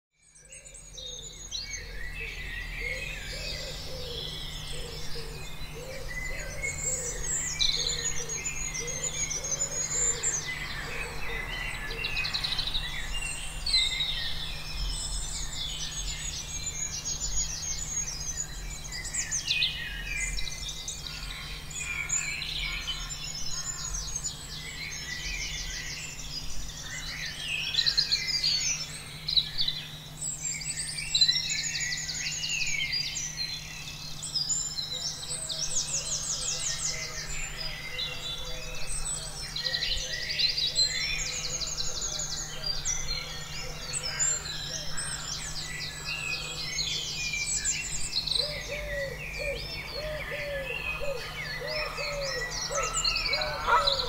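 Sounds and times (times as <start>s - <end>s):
birds chirping and trilling: 0.2s - 54.0s
steady low hum: 0.6s - 54.0s
lower repeated bird call: 48.1s - 54.0s.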